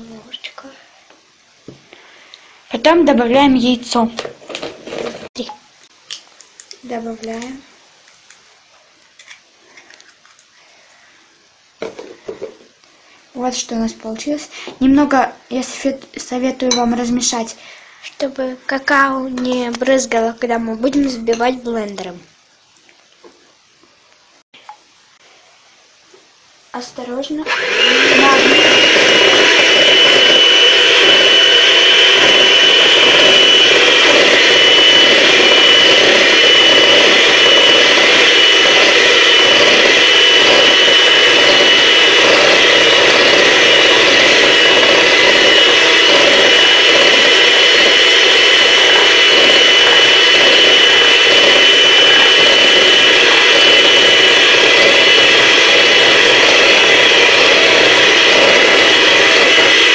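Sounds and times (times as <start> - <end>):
electric blender motor whining: 4.5 - 5.3, 27.4 - 59.9.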